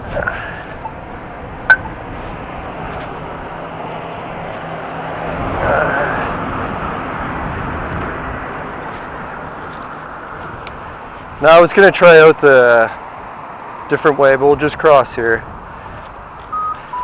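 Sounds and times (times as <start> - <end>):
traffic noise: 0.0 - 17.0
wind rushing over microphone: 6.3 - 9.6.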